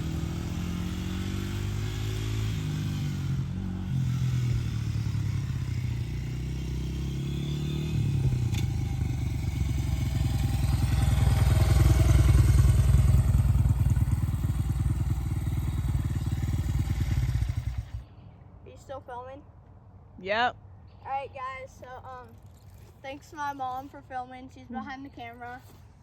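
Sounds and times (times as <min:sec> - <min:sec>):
dirt bike engine running: 0:00.0 - 0:18.0.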